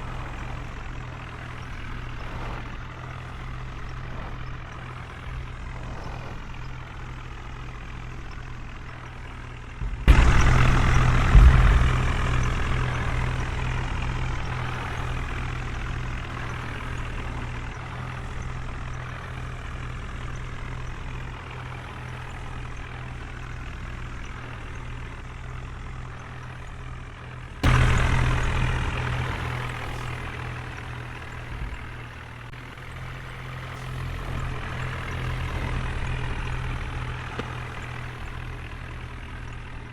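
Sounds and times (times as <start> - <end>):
heavy diesel engine revving: 0.0 - 39.9.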